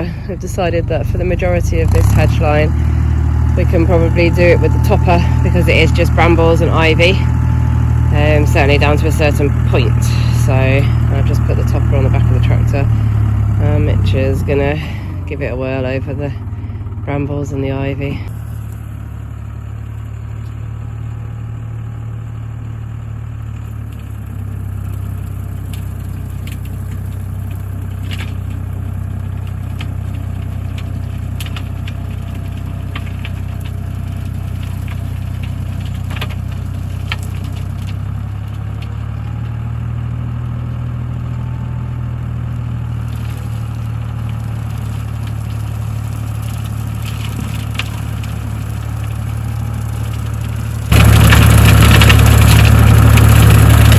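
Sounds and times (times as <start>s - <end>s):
topper cutting brambles: 0.0s - 18.9s, 42.9s - 53.9s
tractor engine running: 0.0s - 53.9s
cracks and clatter of twigs: 23.5s - 41.4s, 42.9s - 53.9s.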